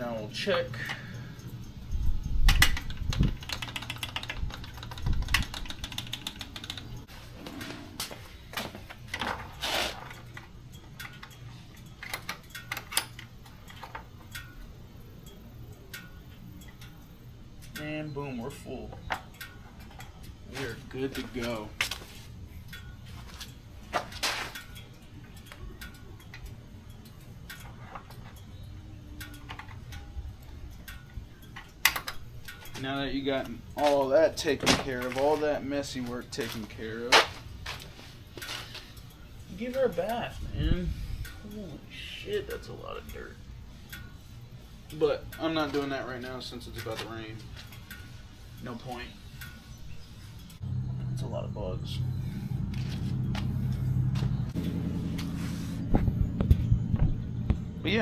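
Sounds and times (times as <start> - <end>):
low steady background rumble: 0.0 - 58.0
mechanical ticking: 0.8 - 7.7, 10.2 - 21.8, 24.6 - 37.0, 38.2 - 52.1.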